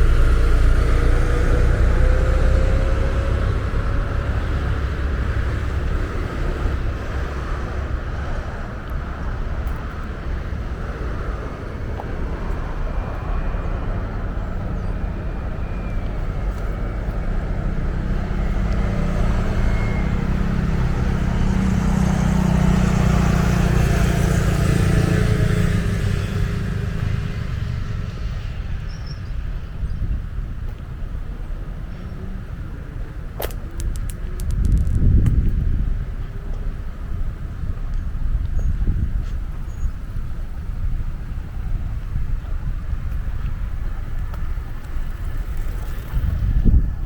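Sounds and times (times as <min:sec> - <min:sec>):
vehicle passing: 0:00.0 - 0:28.9, 0:42.7 - 0:47.0
road traffic rumble: 0:00.0 - 0:47.0.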